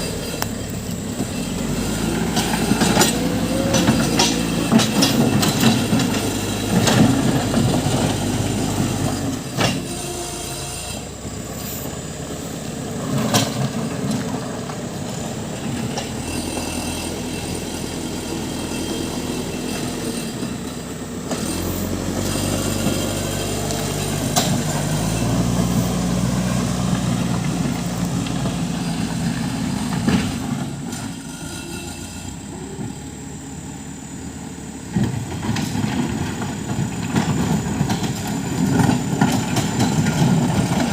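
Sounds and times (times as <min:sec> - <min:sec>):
metal clanks and squeals: 0:00.0 - 0:12.0, 0:15.4 - 0:33.3
diesel engine under load: 0:00.0 - 0:40.9.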